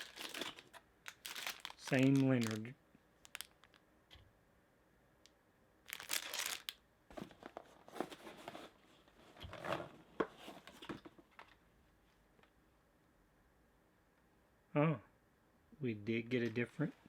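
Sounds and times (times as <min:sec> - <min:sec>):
wrapper tearing and crinkling: 0:00.0 - 0:03.8, 0:05.9 - 0:06.8.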